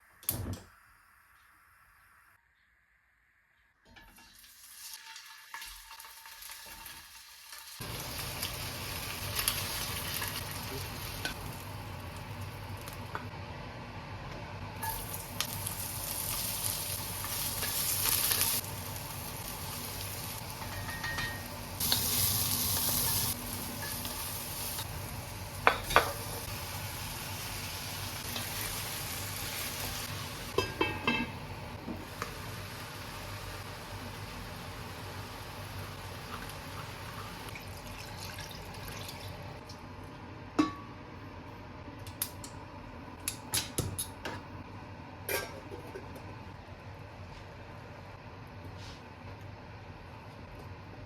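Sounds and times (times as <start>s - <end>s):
food sizzling in a pan: 4.0s - 13.3s, 14.8s - 39.5s.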